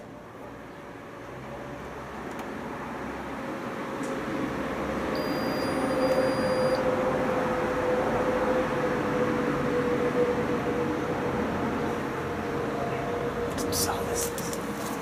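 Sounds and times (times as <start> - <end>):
high electronic tone: 5.2 - 6.8.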